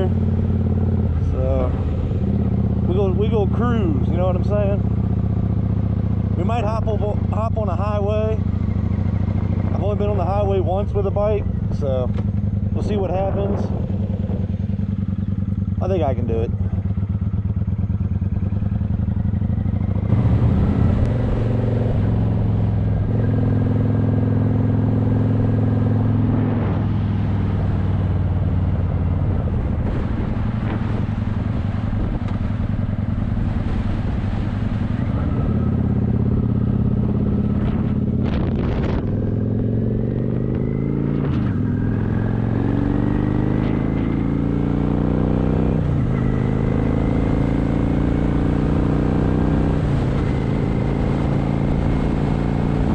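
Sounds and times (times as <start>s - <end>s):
motorcycle engine running: 0.0s - 52.9s
wind rushing over microphone: 5.8s - 17.4s, 18.5s - 24.2s, 25.1s - 44.8s, 49.4s - 52.9s.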